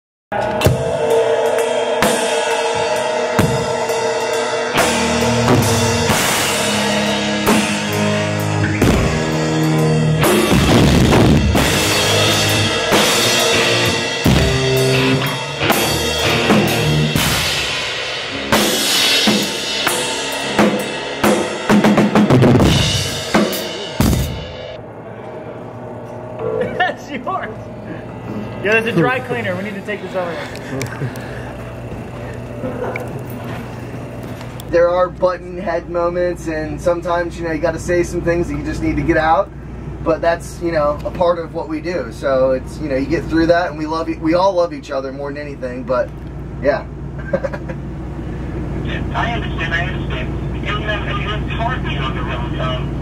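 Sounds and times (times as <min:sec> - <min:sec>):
drum kit: 0:00.3 - 0:24.8
rock band music: 0:00.3 - 0:25.1.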